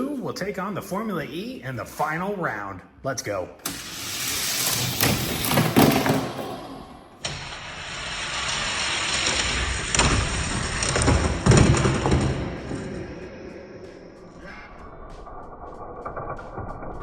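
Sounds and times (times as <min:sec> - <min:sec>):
toy cars rattling down plastic track: 0:03.7 - 0:06.7, 0:07.3 - 0:12.4.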